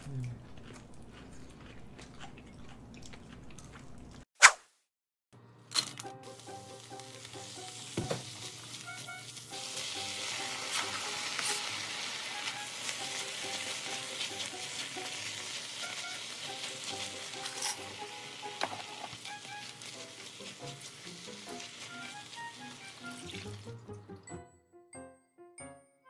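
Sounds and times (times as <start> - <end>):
onion sizzling in oil: 6.2 - 23.8.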